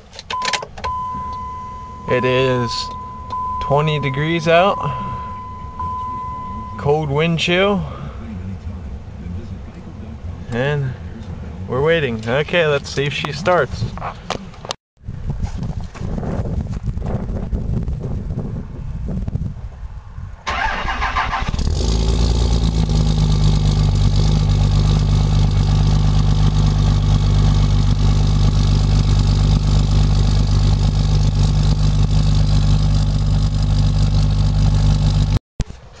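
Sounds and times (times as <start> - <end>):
diesel engine idling: 0.9 - 13.6, 20.5 - 35.4.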